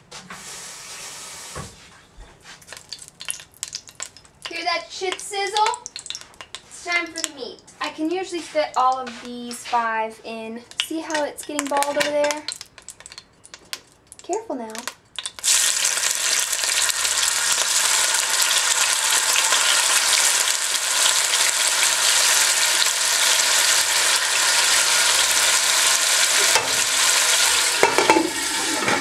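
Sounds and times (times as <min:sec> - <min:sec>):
chicken sizzling in hot oil: 0:00.4 - 0:01.6, 0:15.2 - 0:29.0.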